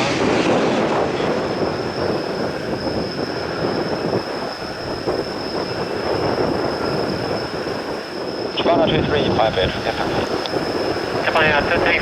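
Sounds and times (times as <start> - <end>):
jet engine high whine: 0.0 - 12.0
jet engine rumble: 0.0 - 12.0.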